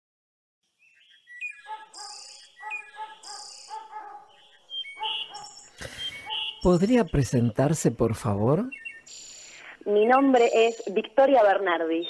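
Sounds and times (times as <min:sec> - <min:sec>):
birds chirping: 0:00.7 - 0:12.0
high buzzy bird trills: 0:00.9 - 0:07.4.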